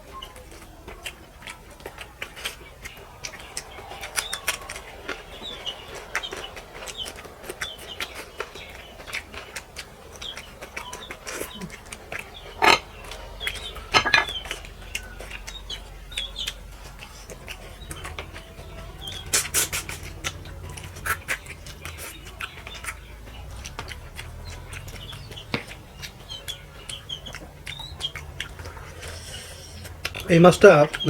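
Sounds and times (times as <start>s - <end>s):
birds chirping: 0.0s - 31.0s
lip smacks: 0.0s - 31.0s
dishes clinking: 12.6s - 14.6s.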